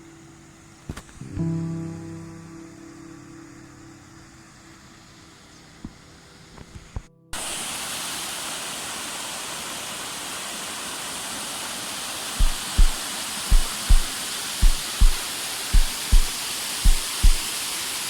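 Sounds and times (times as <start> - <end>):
faint steady tones: 0.0 - 7.4, 12.4 - 17.5
rainwater rushing: 7.4 - 18.0
low thumps: 12.4 - 15.2, 15.8 - 16.3, 16.9 - 17.4.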